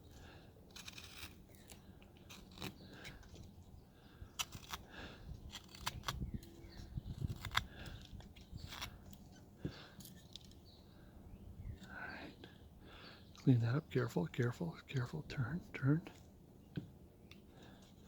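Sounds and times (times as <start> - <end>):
knife carving hard wood: 0.1 - 3.6, 4.2 - 10.6.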